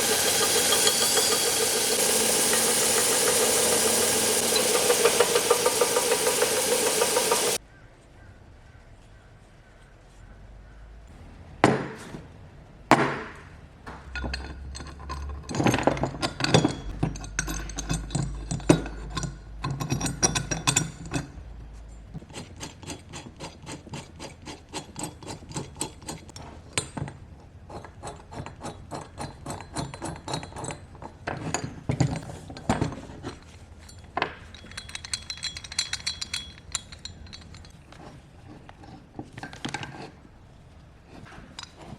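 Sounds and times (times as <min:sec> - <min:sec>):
metal tools clinking and knocking: 0:00.0 - 0:07.6, 0:13.9 - 0:21.4, 0:29.2 - 0:40.2.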